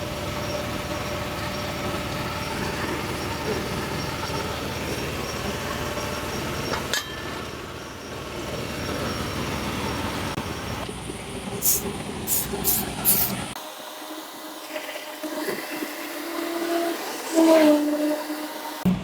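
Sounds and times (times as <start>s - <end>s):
steady mechanical running noise: 0.0s - 17.3s.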